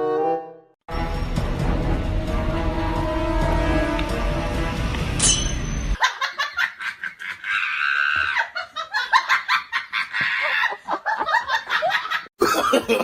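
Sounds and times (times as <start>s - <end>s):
high-pitched laughter: 6.0s - 13.0s.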